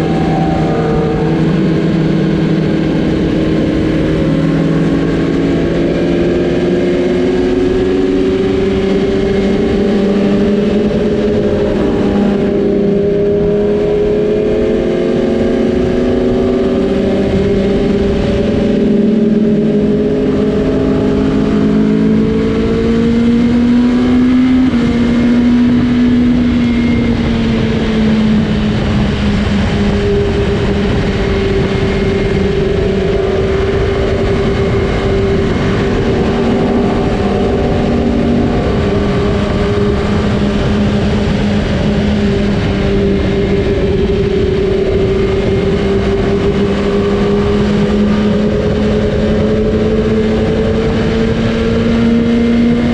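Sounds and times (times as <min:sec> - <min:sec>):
motorcycle engine cruising: 0:00.0 - 0:52.9
wind noise rushing: 0:00.0 - 0:52.9.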